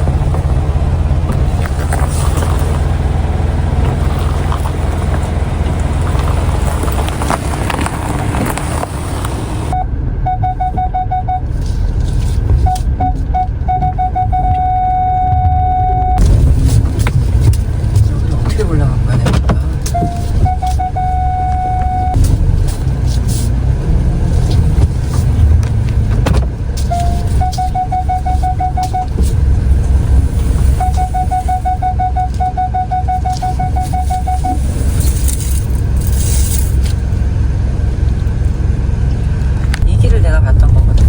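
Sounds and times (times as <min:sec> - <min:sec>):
parking sensor beeping: 0:00.0 - 0:11.7, 0:12.6 - 0:16.3, 0:18.2 - 0:22.2, 0:26.8 - 0:36.6
car engine and tyre rumble: 0:00.0 - 0:41.0.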